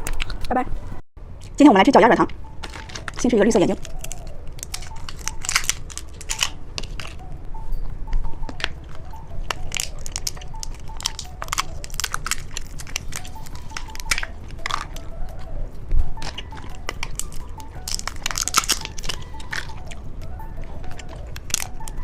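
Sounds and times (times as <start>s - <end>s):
chewing gummy candy crunches: 2.6s - 7.2s, 8.5s - 15.5s, 16.1s - 22.0s.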